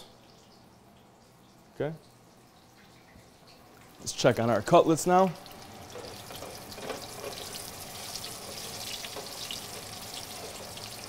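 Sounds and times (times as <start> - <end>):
chicken sizzling in hot oil: 5.2 - 11.0.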